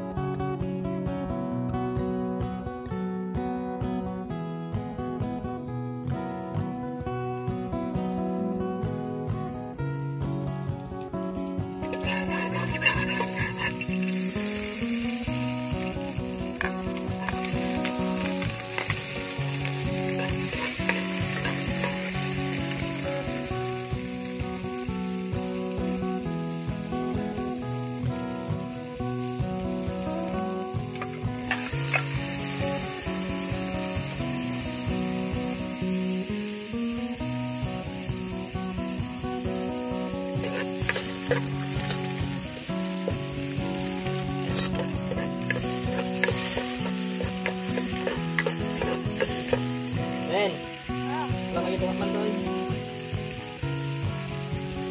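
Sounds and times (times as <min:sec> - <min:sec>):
shallots sizzling in hot oil: 0:06.5 - 0:54.9
metal ladle clinking on pot: 0:11.8 - 0:14.2.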